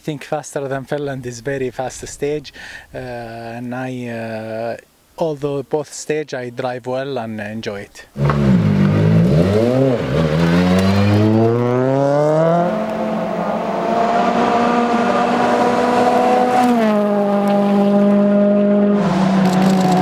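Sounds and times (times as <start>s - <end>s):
rally car engine accelerating: 8.2s - 20.0s.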